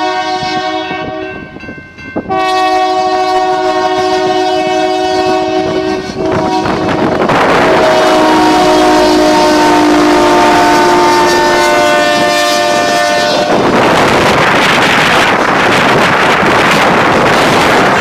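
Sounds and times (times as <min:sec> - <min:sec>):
locomotive air horn blowing: 0:00.0 - 0:01.4, 0:02.3 - 0:13.8
train running on rails: 0:00.0 - 0:18.0.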